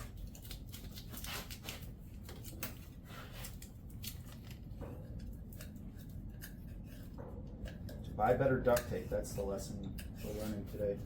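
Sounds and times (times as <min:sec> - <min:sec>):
hands working with duct tape: 0:00.0 - 0:08.0
low steady hum: 0:00.0 - 0:11.0.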